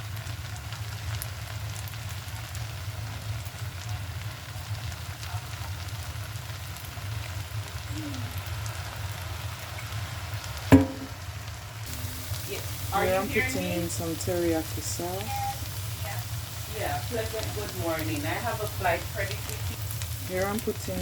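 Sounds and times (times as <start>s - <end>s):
fried rice sizzling in a pan: 0.0s - 21.0s
utensil knocking on pan: 10.7s - 11.2s.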